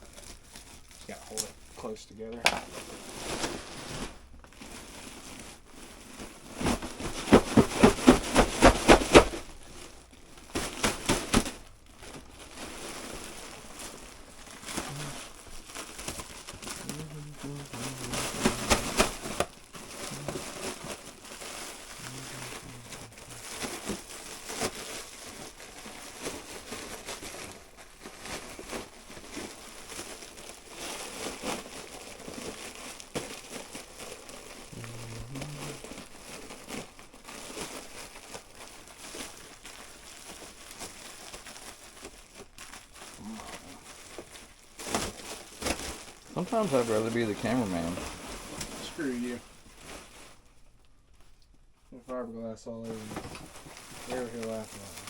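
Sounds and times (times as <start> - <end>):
air duct crinkling and crackling: 0.0 - 55.0.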